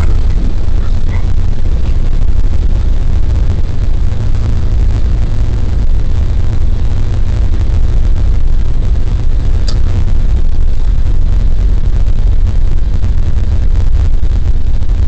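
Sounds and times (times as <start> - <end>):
airplane landing roll rumble: 0.0 - 15.0
sharp click: 9.6 - 9.9.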